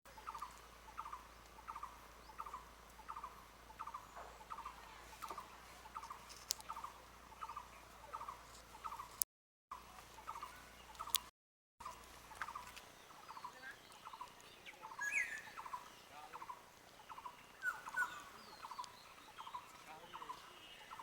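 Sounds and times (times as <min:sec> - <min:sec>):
faint clicks: 0:00.2 - 0:09.2, 0:10.0 - 0:11.3, 0:11.9 - 0:20.5
animal calling repeatedly: 0:13.4 - 0:20.3.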